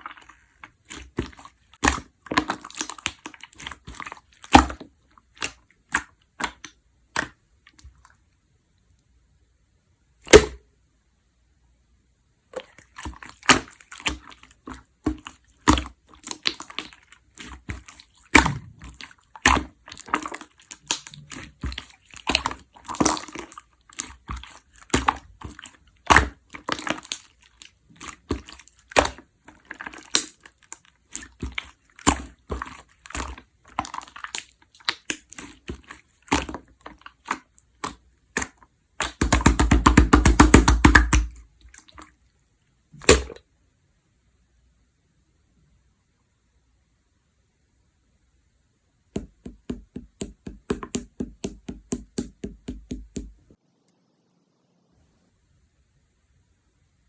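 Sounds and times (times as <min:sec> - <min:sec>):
slime squished by hand: 0:00.0 - 0:08.1, 0:12.5 - 0:42.2, 0:43.0 - 0:43.4, 0:49.2 - 0:53.4.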